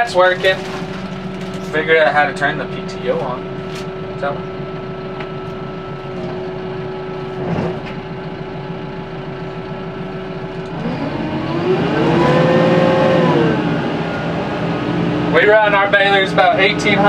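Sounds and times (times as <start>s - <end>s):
engine knock: 0.0s - 11.0s
tractor diesel engine idling: 0.0s - 17.0s.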